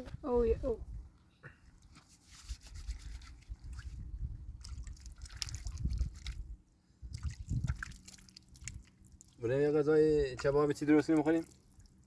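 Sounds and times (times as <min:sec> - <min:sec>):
spring water trickling and splashing: 0:02.6 - 0:12.0.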